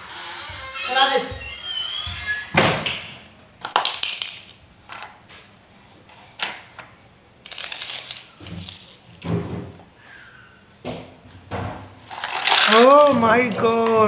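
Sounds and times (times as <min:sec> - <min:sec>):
hard toys knocking and clicking: 0:12.1 - 0:14.0.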